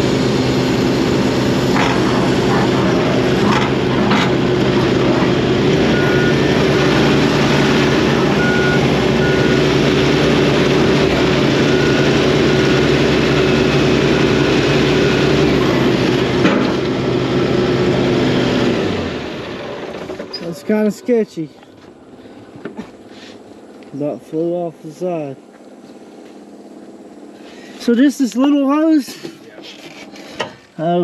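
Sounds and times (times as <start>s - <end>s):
excavator diesel engine running: 0.0s - 30.4s
short high beep: 8.2s - 9.6s.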